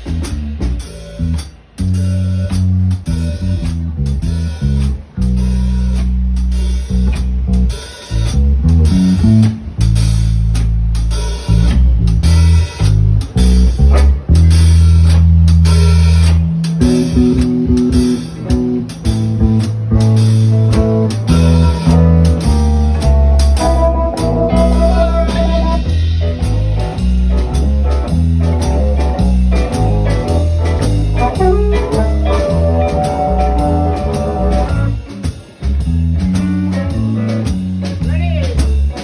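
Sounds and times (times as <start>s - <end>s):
blues band playing: 0.0s - 39.0s
drum hits: 0.0s - 39.0s
long held bass notes: 0.0s - 39.0s.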